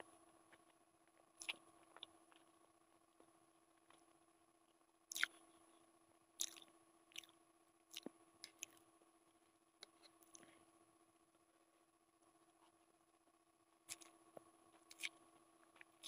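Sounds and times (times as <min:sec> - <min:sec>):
faint steady hum: 0:00.0 - 0:16.0
mouth smacks and clicks: 0:05.1 - 0:05.4, 0:06.4 - 0:07.3, 0:14.9 - 0:15.2
person chewing noodles: 0:05.1 - 0:05.4, 0:06.4 - 0:08.8, 0:13.9 - 0:14.1, 0:14.7 - 0:16.0.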